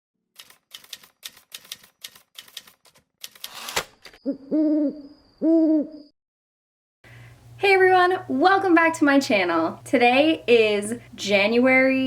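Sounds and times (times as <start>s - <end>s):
typewriter keys clacking: 0.4s - 4.1s
typewriter carriage return swish: 0.4s - 4.2s
owl hooting: 4.2s - 6.1s.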